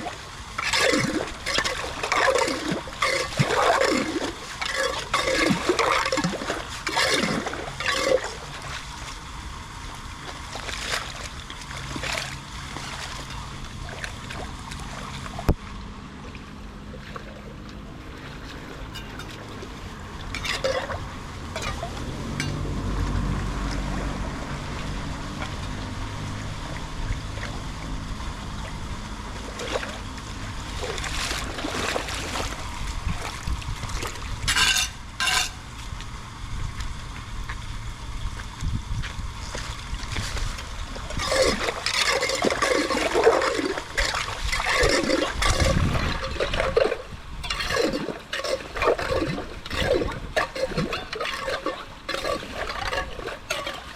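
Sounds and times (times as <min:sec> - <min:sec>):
water running and splashing: 0:00.0 - 0:15.5, 0:28.7 - 0:35.6, 0:39.4 - 0:53.9
low rumble: 0:13.0 - 0:41.2.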